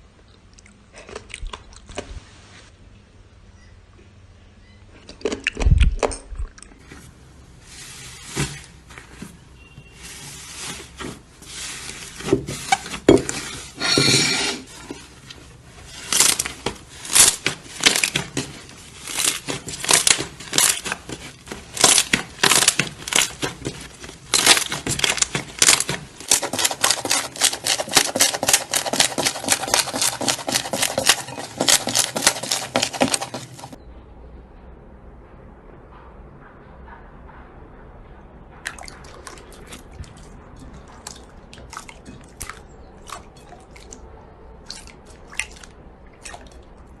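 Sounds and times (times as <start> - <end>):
slime crackling and popping: 19.0 - 33.8.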